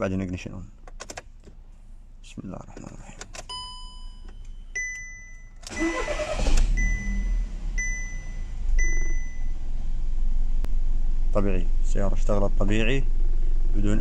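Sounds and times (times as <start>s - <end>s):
dashboard chimes: 3.5s - 6.1s, 6.8s - 9.5s
warning chime beeping: 4.8s - 9.5s
car starter cranking: 5.6s - 8.9s
car engine running: 5.7s - 14.0s.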